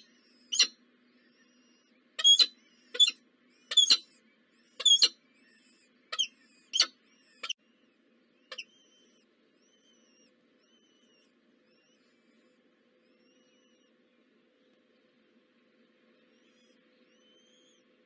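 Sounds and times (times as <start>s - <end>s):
sharp high bird calls: 0.0s - 0.7s, 2.2s - 4.1s, 4.7s - 5.2s, 6.1s - 7.6s.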